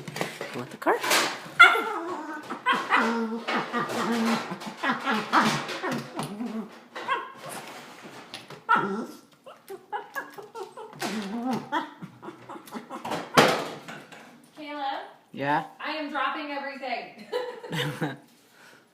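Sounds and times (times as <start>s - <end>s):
dog whining and barking: 1.6s - 7.7s, 8.6s - 13.0s.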